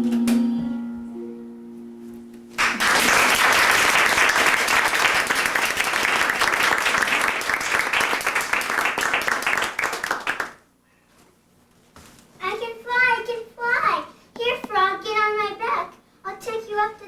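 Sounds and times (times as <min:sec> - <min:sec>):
audience applause: 0:02.6 - 0:10.6.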